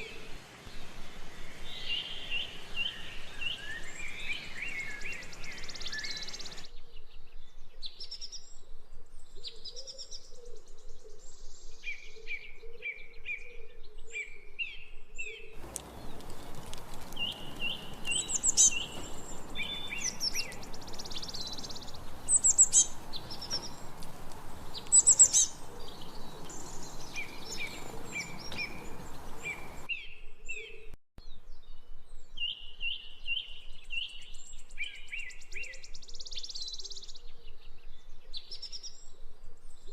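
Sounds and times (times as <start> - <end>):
steady background hiss: 0.0 - 6.6, 15.6 - 29.9
songbirds chirping: 0.0 - 39.9.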